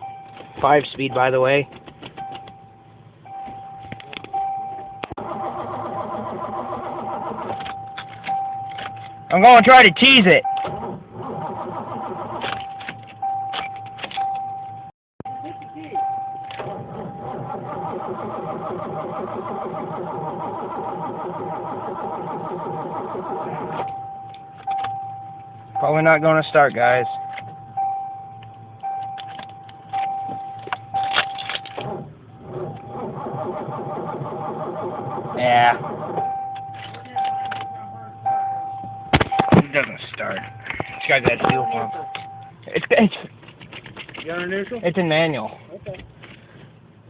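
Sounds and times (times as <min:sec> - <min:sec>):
high warning tone: 0:00.0 - 0:05.2, 0:06.8 - 0:11.0, 0:12.6 - 0:18.8, 0:21.0 - 0:42.6
engine cranking by starter: 0:05.1 - 0:14.2, 0:16.4 - 0:24.0, 0:28.8 - 0:37.8.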